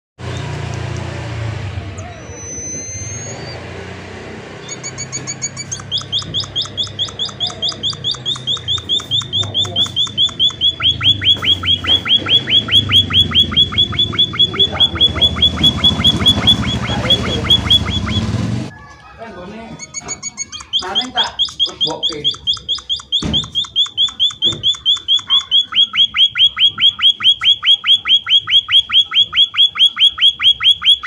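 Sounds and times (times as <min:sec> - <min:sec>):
finch calling sharp notes: 0:02.0 - 0:03.6, 0:04.6 - 0:18.4, 0:19.8 - 0:31.0
thin whistled bird notes: 0:05.7 - 0:12.0.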